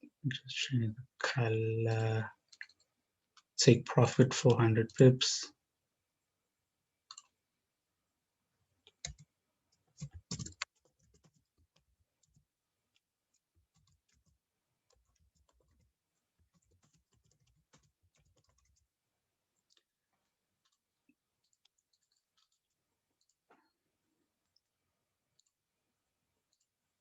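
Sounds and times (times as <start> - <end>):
keyboard typing: 7.1 - 7.4, 8.8 - 19.9, 20.6 - 23.5, 25.3 - 25.6, 26.4 - 27.0.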